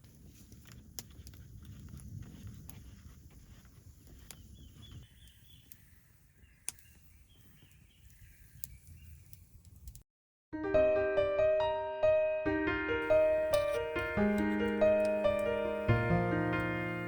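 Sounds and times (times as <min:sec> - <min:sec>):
faint birdsong: 0:03.8 - 0:09.9, 0:13.1 - 0:17.0.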